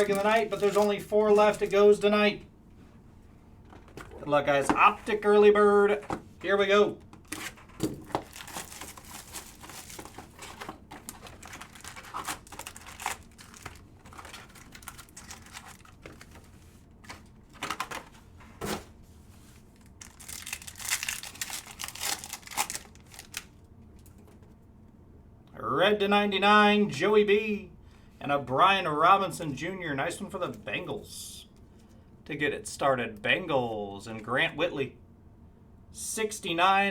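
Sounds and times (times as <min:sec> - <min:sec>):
card pack wrappers tearing: 0:00.0 - 0:01.8, 0:07.2 - 0:18.1, 0:19.8 - 0:23.5.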